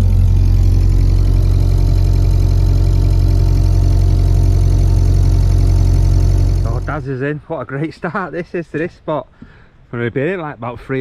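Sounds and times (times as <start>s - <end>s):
boat engine humming: 0.0s - 7.2s.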